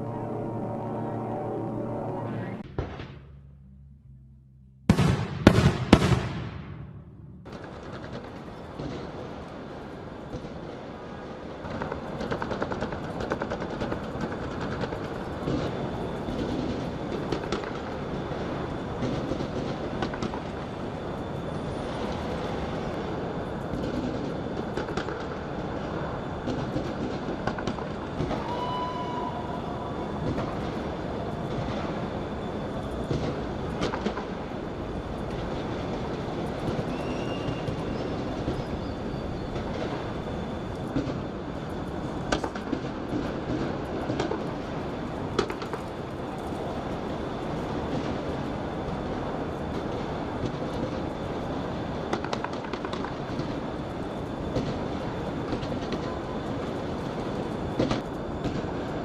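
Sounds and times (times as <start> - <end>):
firework whistling: 4.9 - 59.0
fireworks crackling and popping: 4.9 - 59.0.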